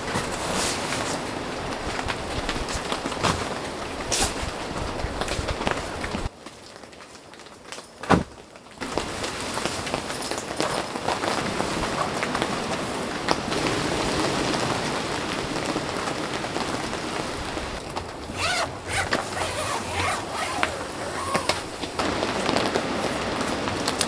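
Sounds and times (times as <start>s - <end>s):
steady rain: 8.8s - 18.3s, 21.6s - 24.0s
zipper being pulled: 18.2s - 22.0s.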